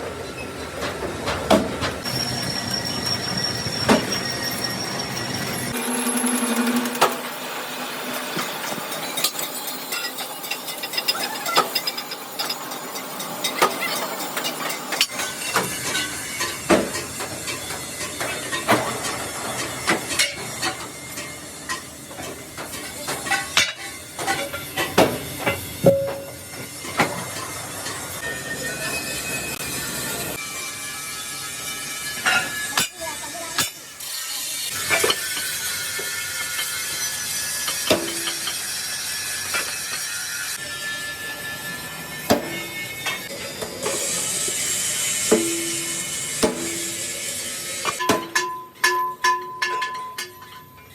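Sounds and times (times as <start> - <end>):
metalworking machinery hiss: 11.7 - 48.0.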